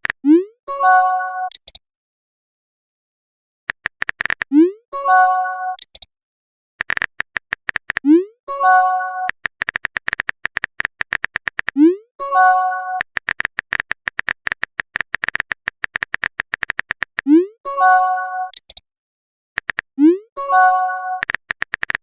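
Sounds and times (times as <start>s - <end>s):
rapid keyboard tap clicks: 3.7s - 4.5s, 6.8s - 8.0s, 9.3s - 11.8s, 13.0s - 17.3s, 19.6s - 19.9s, 21.2s - 22.0s.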